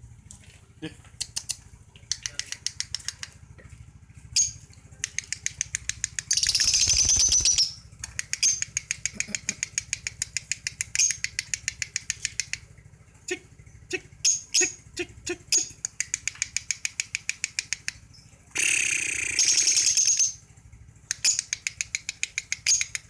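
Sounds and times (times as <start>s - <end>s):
lovebird chattering: 6.2s - 9.9s, 15.5s - 16.2s, 18.6s - 20.4s, 21.1s - 23.0s.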